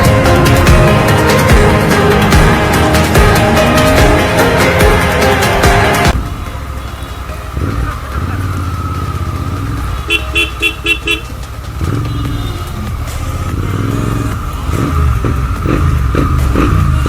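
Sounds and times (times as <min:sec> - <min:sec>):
motorcycle engine running: 0:00.0 - 0:17.0
vehicle horn beeps: 0:06.6 - 0:08.8, 0:09.9 - 0:13.7.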